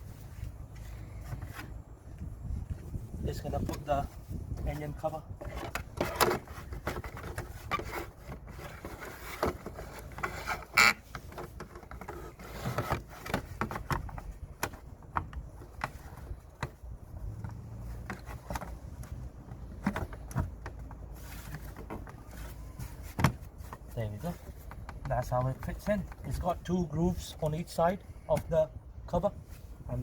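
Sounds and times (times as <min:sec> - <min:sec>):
plastic engine cover knocks and clicks: 0:17.4 - 0:22.2.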